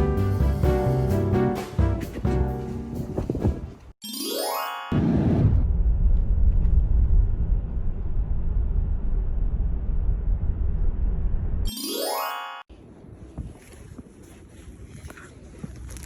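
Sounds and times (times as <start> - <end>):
low rumbling noise: 5.2 - 11.6.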